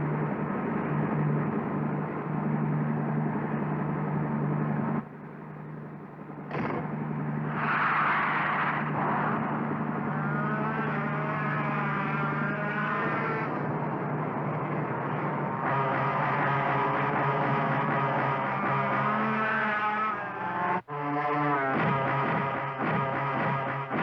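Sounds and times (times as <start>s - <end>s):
wavering whine: 0.0s - 24.0s
cartoon race car engine: 6.4s - 24.0s.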